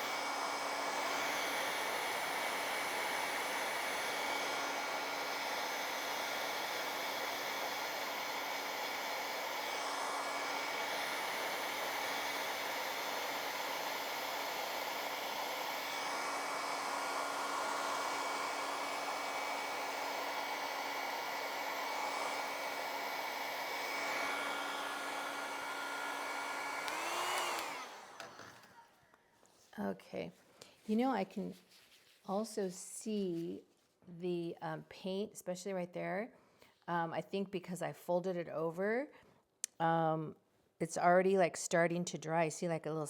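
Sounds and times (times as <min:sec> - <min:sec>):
hair dryer blowing: 0:00.0 - 0:29.0.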